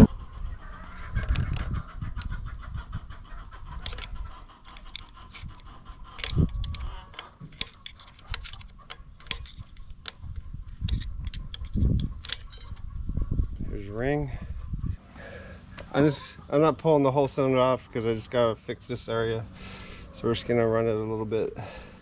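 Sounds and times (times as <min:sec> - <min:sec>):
hand tools clicking and scraping metal: 0:03.8 - 0:12.9.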